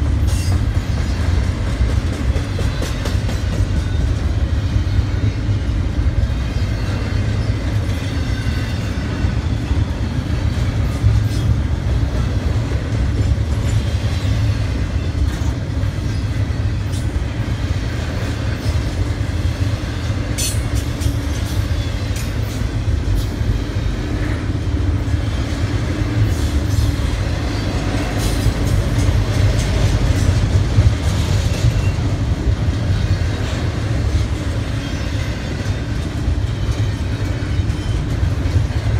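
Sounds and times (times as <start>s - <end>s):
train rumbling past: 0.0s - 38.9s
wheels clicking over rail joints: 26.3s - 38.9s.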